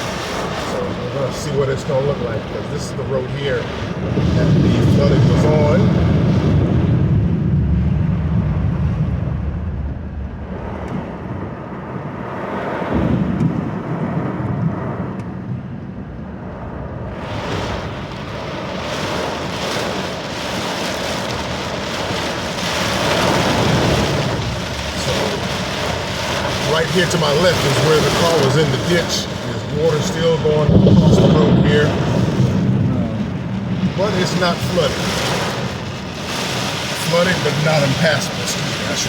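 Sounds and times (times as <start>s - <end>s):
tyres hissing on water: 0.0s - 6.1s, 17.2s - 39.0s
road rumble inside car: 0.0s - 39.0s.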